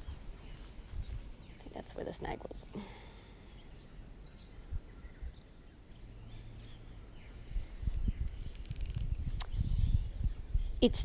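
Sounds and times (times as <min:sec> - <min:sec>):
wind rumbling on microphone: 0:00.0 - 0:02.6, 0:04.2 - 0:05.5, 0:06.8 - 0:11.0.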